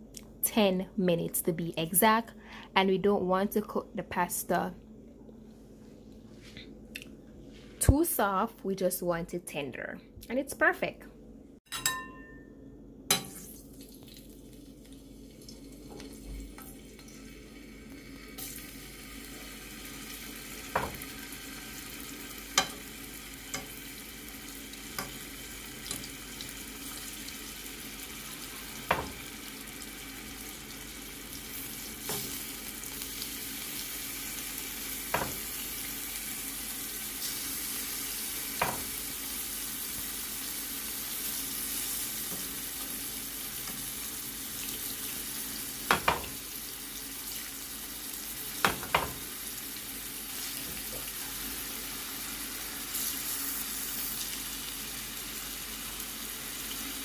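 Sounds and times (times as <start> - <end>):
chicken sizzling in a pan: 13.2 - 57.0.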